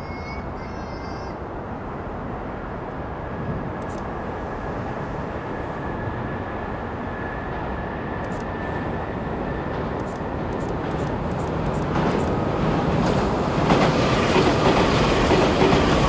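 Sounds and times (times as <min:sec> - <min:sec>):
train wheels rumbling on rails: 0:03.4 - 0:16.0.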